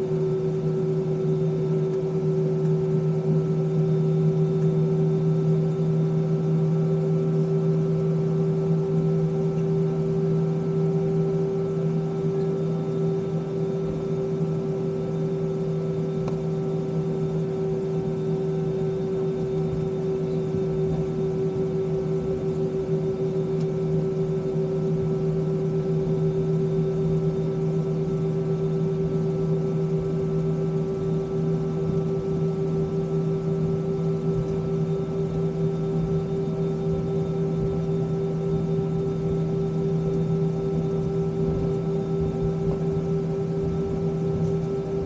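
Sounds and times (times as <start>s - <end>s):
aircraft cabin engine drone: 0.0s - 45.0s.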